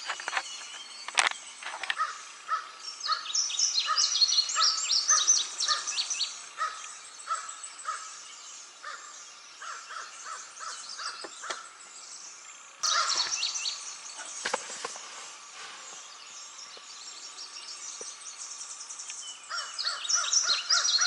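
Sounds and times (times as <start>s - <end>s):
crows cawing: 2.0s - 3.2s, 6.6s - 8.2s, 8.8s - 11.7s, 12.8s - 13.3s, 19.5s - 21.0s.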